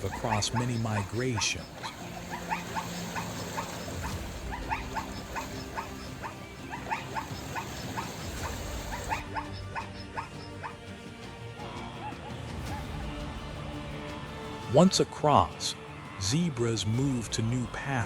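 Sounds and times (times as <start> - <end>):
zebras barking: 0.0 - 10.9.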